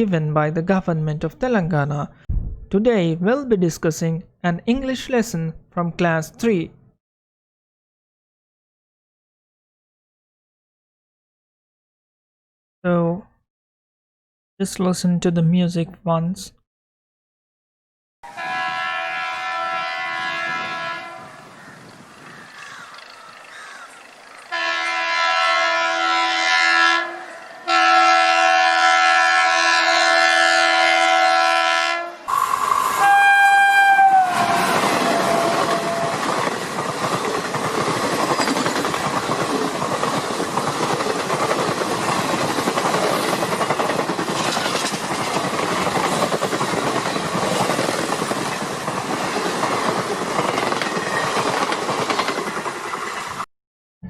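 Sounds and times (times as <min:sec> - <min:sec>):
train horn blasts: 0:18.2 - 0:21.5, 0:24.4 - 0:36.3
train rumbling on rails: 0:18.3 - 0:28.1, 0:32.2 - 0:53.5.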